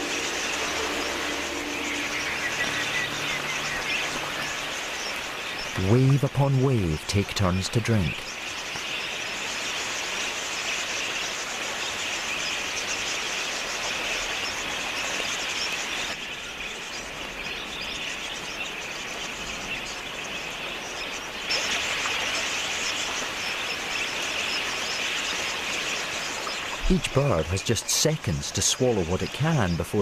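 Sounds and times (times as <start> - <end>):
flock of budgerigars chattering: 0.0 - 30.0.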